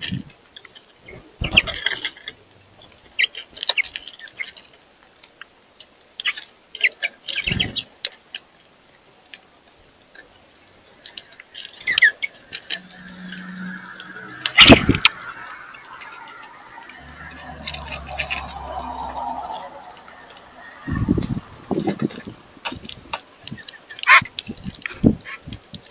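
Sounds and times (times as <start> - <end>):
birds chirping: 0.0 - 5.0, 5.8 - 8.0, 10.1 - 25.9.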